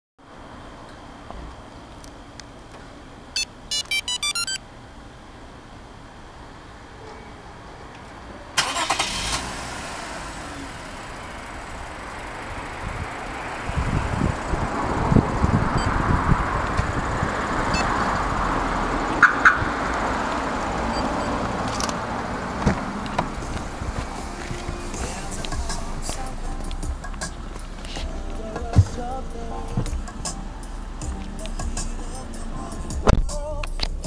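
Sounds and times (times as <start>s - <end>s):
car engine starting and idling: 8.5s - 34.0s.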